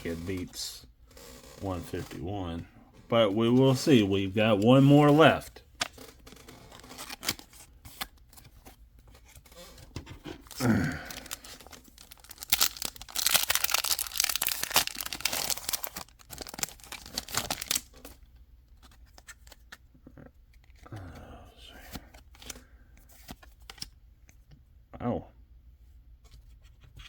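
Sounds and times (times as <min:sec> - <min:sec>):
foil wrapper tearing and crinkling: 0:10.5 - 0:18.1.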